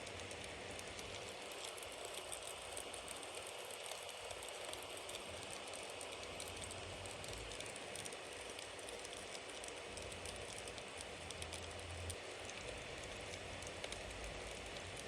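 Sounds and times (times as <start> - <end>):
bonfire burning: 0.0 - 15.0.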